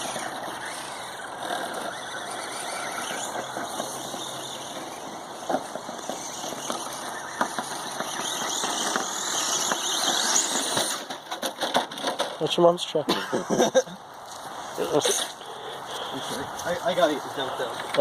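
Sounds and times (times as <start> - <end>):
rc car motor whine: 0.0 - 12.4
rc car bumping knocks: 1.4 - 12.4.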